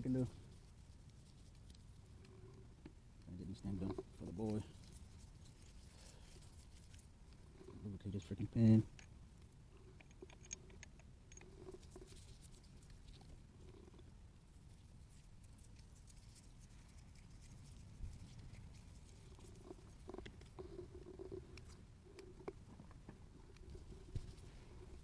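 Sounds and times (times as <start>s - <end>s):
small engine parts clicking: 9.8s - 12.3s.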